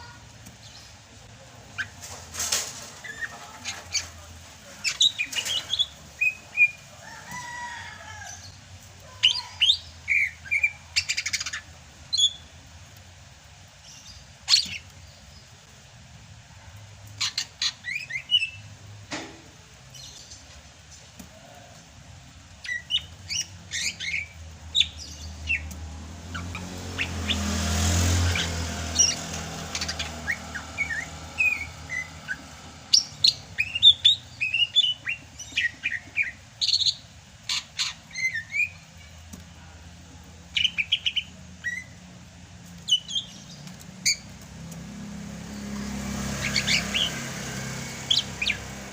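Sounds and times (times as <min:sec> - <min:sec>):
bird chirping and whistling: 0:28.3 - 0:38.8, 0:46.4 - 0:47.2, 0:48.1 - 0:48.6.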